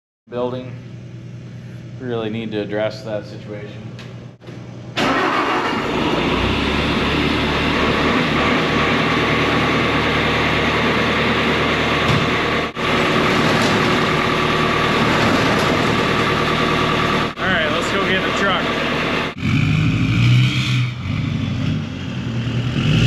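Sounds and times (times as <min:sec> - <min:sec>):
diesel engine running: 0:05.0 - 0:23.0.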